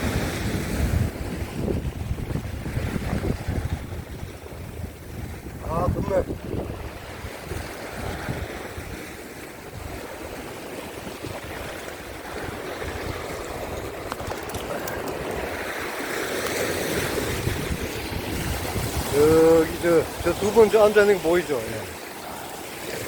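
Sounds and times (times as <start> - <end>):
rough surf washing over rocks: 0.0 - 23.0
wind buffeting microphone: 0.0 - 23.0.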